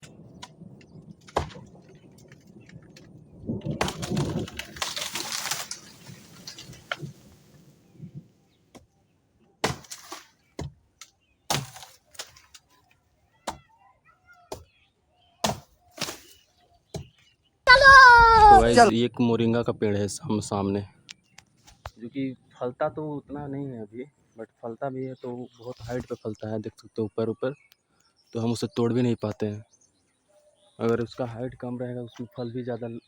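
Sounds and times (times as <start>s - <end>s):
wood and branches breaking: 0.0s - 7.7s, 9.6s - 13.6s, 15.4s - 18.1s
axe chopping into trunk: 1.3s - 1.6s, 9.6s - 10.8s, 11.5s - 12.6s, 15.4s - 17.2s
faint bird chirps: 20.9s - 33.0s.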